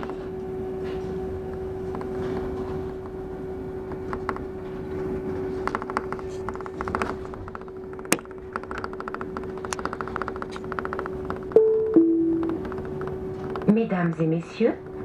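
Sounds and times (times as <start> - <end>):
train drive humming: 11.0 - 15.0.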